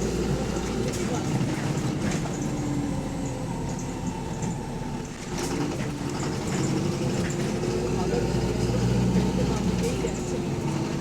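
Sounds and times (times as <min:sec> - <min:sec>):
bus engine running: 0:00.0 - 0:11.0
engine knocking: 0:03.2 - 0:11.0.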